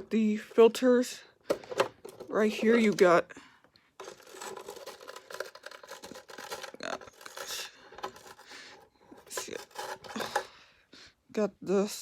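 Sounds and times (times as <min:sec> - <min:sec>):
plastic parts clicking and rattling: 0:01.4 - 0:10.6.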